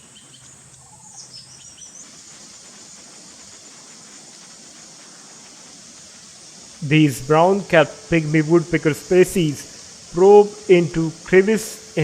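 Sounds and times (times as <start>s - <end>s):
faint high bird chirps: 0.0s - 2.2s
high-pitched insect drone: 0.0s - 12.0s.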